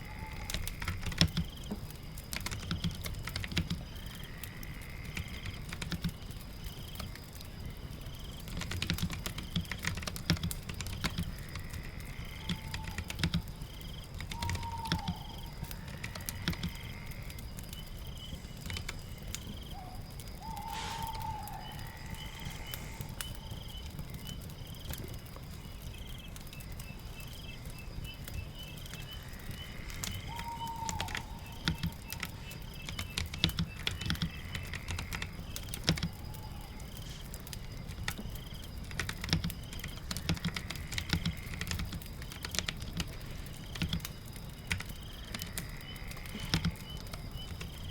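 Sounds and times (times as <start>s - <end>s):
fire crackling: 0.0s - 47.9s
birds chirping: 9.1s - 47.9s
short falling bird calls: 14.2s - 17.2s, 17.9s - 24.2s, 28.4s - 34.9s.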